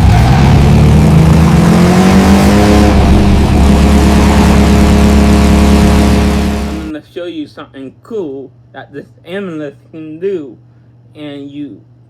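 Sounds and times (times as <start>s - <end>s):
slot car motor whining: 0.0s - 6.9s.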